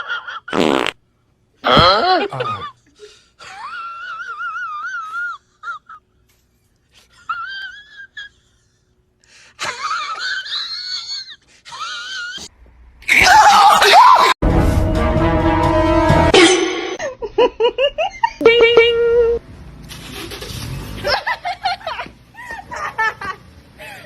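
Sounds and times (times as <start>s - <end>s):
music: 14.4s - 16.4s.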